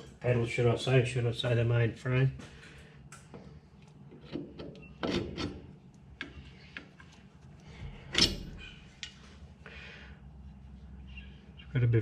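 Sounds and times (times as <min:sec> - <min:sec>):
metal parts clicking and scraping: 0:04.2 - 0:07.1, 0:08.0 - 0:09.2.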